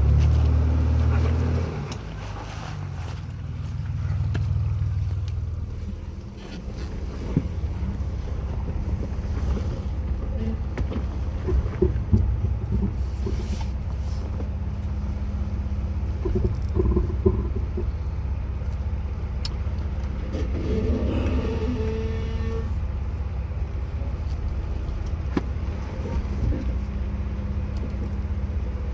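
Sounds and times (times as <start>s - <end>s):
car engine running low: 0.0s - 28.9s
knocks and clunks: 5.4s - 14.6s, 16.1s - 18.1s.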